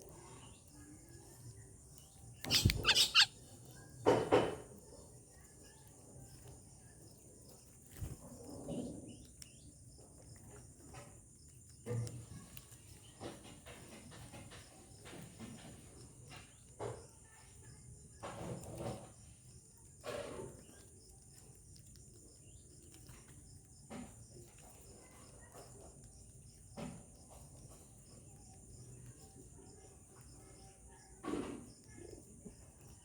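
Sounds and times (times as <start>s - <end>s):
bird clicks: 2.4s - 3.3s
insects hissing: 2.4s - 3.3s
birds calling: 2.4s - 3.4s.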